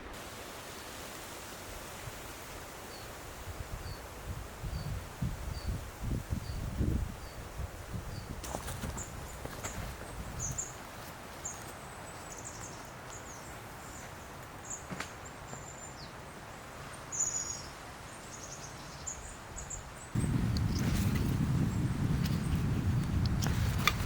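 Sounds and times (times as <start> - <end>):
faint forest background: 0.0 - 24.0
small birds chirping: 3.8 - 24.0
low rumble: 20.2 - 24.0.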